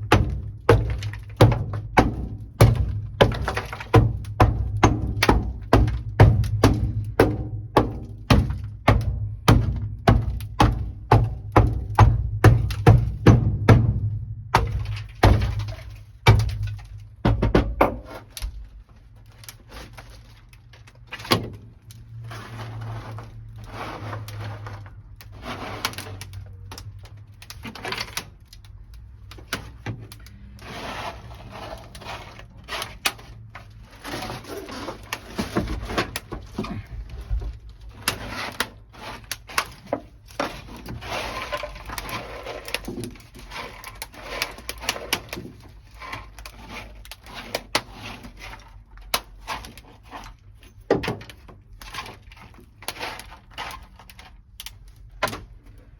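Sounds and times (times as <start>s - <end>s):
sharp knocks and cracks: 0.0s - 22.2s, 24.2s - 30.6s, 31.8s - 55.9s
scraping and clattering: 14.6s - 54.6s.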